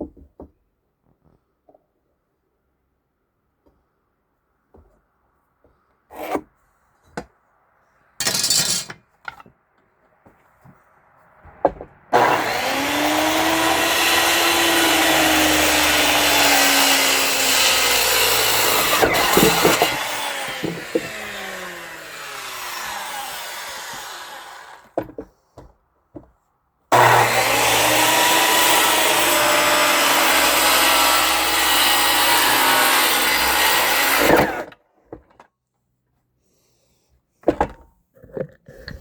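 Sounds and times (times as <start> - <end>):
power saw cutting wood: 12.1 - 25.0, 26.9 - 34.8.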